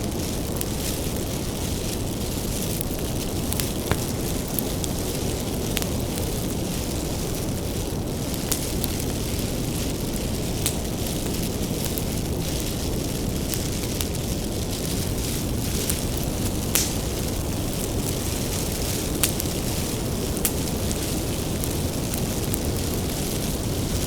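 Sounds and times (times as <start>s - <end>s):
fire crackles and pops: 0.0s - 24.0s
low rumble of flames: 0.0s - 24.0s.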